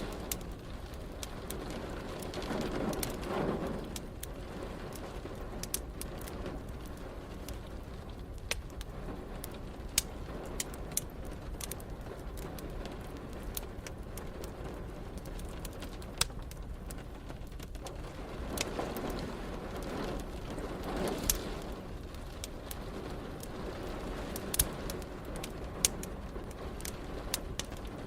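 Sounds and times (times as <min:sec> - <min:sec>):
steady rain: 0:00.0 - 0:28.0
wood fire crackling and popping: 0:00.0 - 0:28.0.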